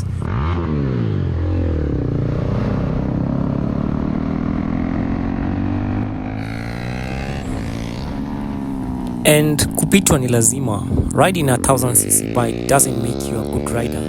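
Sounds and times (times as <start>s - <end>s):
motorcycle engine running: 0.0s - 14.0s
wind rushing: 6.1s - 11.6s.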